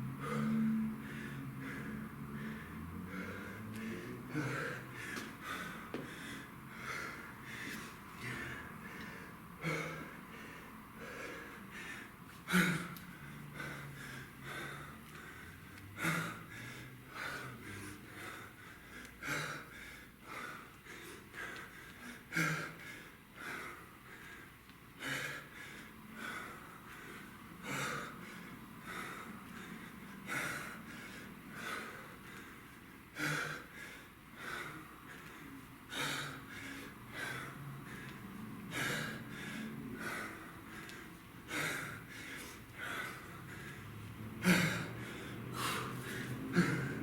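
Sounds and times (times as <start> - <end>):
man panting: 0.0 - 47.0
man exhaling forcefully: 44.4 - 47.0.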